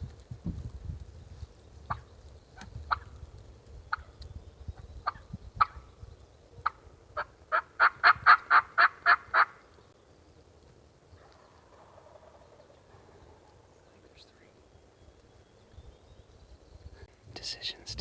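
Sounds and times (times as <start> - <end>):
turkey clucks: 2.6 - 3.1, 6.6 - 9.6
turkey yelps: 6.6 - 9.6.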